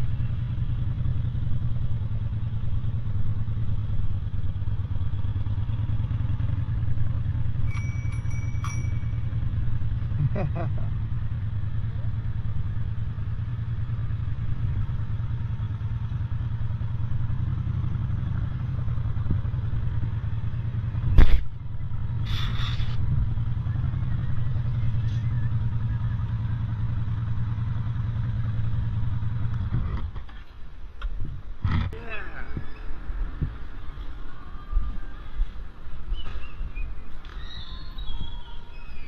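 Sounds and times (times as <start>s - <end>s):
motorcycle engine drone: 0.0s - 39.0s
short hiss: 22.2s - 23.0s.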